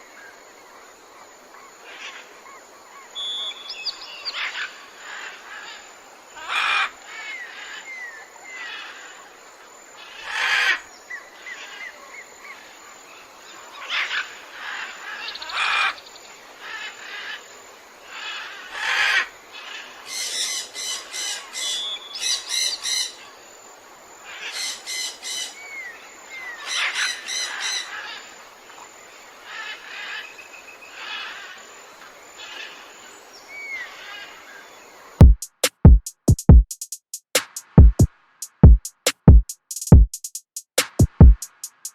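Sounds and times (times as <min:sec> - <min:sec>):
steady background hiss: 0:00.0 - 0:36.2
birds calling and chirping: 0:01.8 - 0:09.3, 0:10.0 - 0:17.5, 0:18.1 - 0:23.4, 0:24.2 - 0:31.8, 0:32.4 - 0:34.8.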